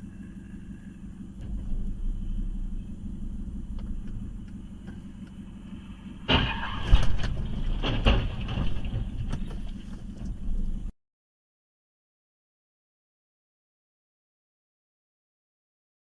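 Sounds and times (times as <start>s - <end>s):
car road rumble: 0.0s - 10.9s
vehicle crash bangs: 1.3s - 5.2s, 5.8s - 10.6s.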